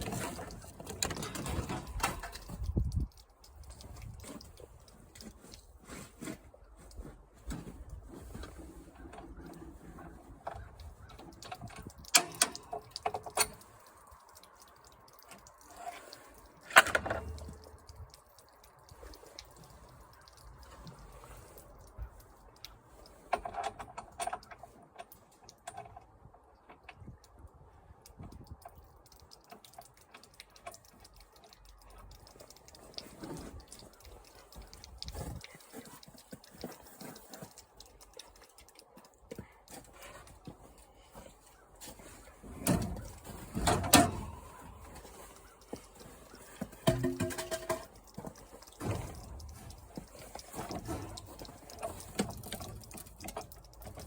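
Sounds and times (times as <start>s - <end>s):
light clicks and taps: 0.0s - 54.0s
sharp knocks and clatter: 42.6s - 54.0s.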